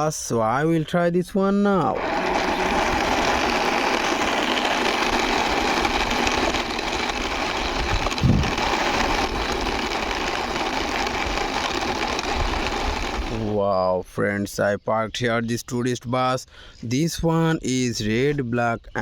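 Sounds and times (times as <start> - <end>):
toy bus wheels rolling: 1.8 - 13.6.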